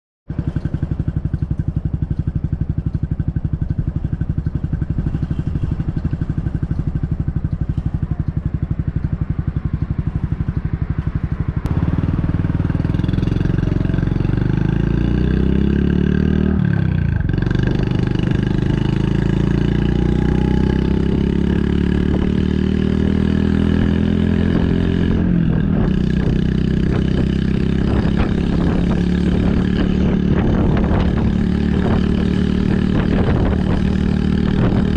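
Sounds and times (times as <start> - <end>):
motorcycle engine idling: 0.3 - 14.8
motorcycle pulling away: 0.3 - 34.9.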